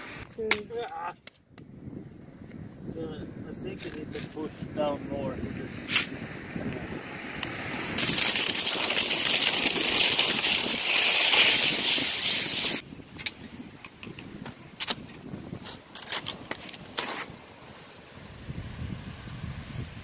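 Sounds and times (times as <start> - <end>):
skis scraping over snow: 7.8 - 12.8.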